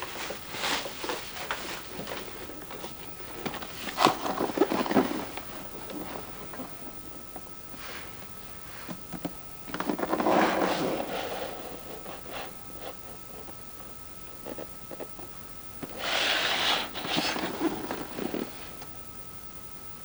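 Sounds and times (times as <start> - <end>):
packaging scraping and rubbing: 0.0 - 6.6.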